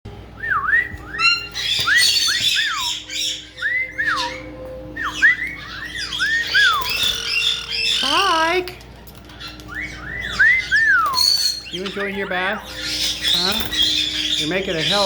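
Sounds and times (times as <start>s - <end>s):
parrot whistles: 0.4s - 8.1s, 9.7s - 12.0s
parrot squawks: 1.1s - 8.6s, 9.3s - 15.0s.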